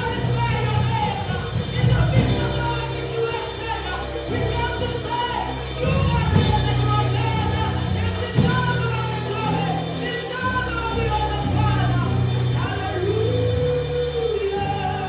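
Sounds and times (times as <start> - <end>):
bass line: 0.0 - 15.0
keyboard or organ chords: 0.0 - 15.0
person singing: 9.4 - 15.0.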